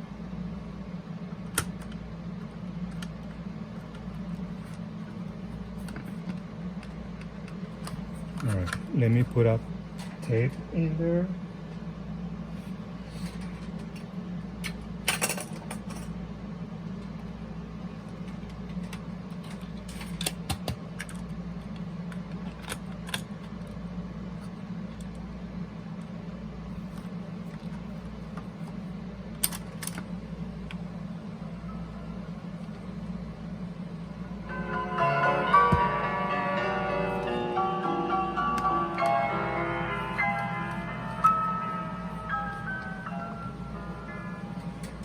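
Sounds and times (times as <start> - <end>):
low hum: 30.0 - 45.0.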